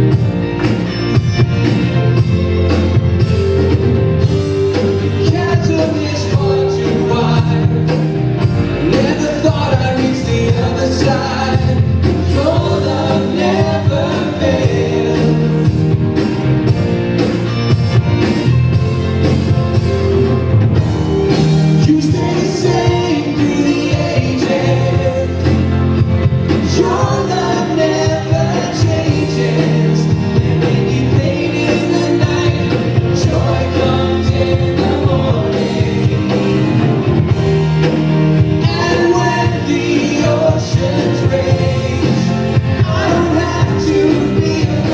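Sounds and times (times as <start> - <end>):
live worship band playing: 0.0 - 44.9
voices singing: 4.8 - 16.2, 21.8 - 36.8, 38.6 - 44.9.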